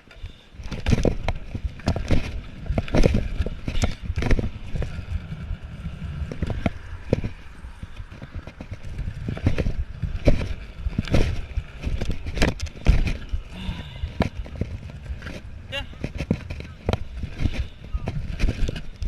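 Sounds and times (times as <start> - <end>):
scooter wheels rolling on concrete: 0.0 - 19.0
scooter clacks and knocks: 0.6 - 5.4.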